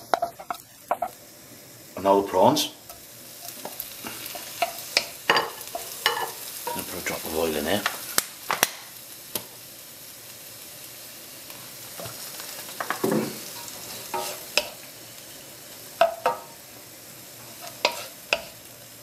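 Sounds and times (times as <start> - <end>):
prawns sizzling in oil: 0.0 - 19.0
utensil scraping a pan: 12.8 - 14.8, 17.4 - 18.6.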